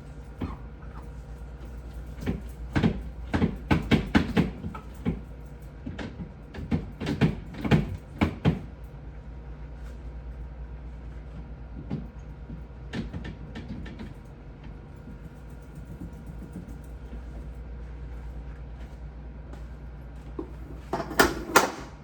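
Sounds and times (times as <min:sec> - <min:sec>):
hard objects knocking and clattering: 0:20.4 - 0:21.9.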